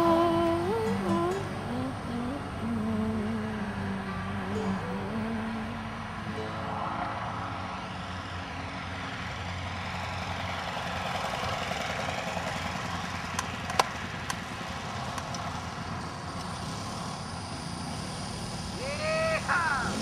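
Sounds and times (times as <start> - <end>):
model plane motor running: 9.2 - 20.0.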